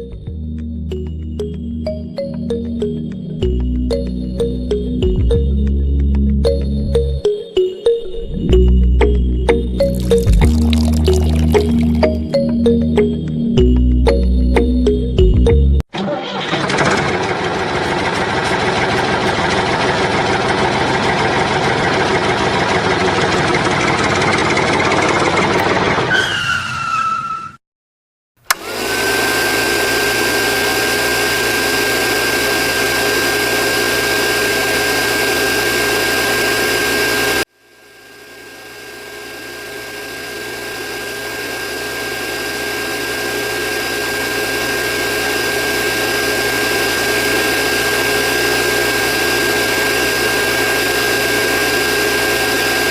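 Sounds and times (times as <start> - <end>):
small motor whining: 28.5 - 52.9.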